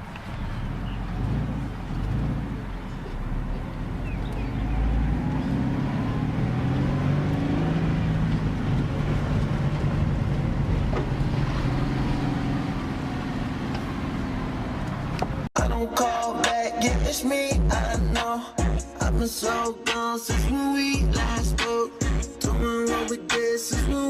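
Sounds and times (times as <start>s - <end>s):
car engine running: 0.0s - 15.5s.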